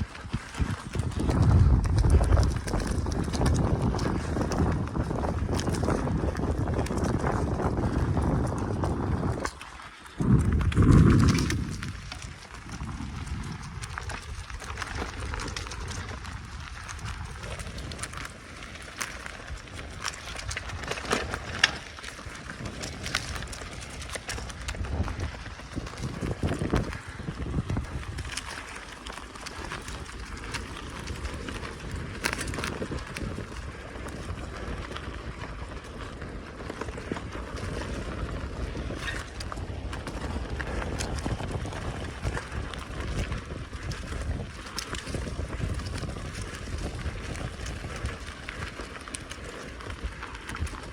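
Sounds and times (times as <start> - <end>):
bicycle tyres rumbling: 0.0 - 50.9
wind buffeting microphone: 0.0 - 50.9
bike knocks and rattles: 20.6 - 27.0.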